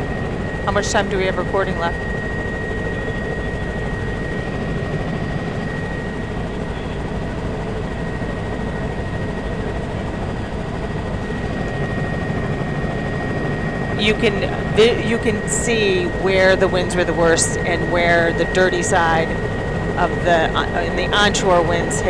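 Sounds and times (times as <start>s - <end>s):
aircraft cabin engine noise: 0.0s - 22.0s
thin steady high tone: 10.5s - 22.0s.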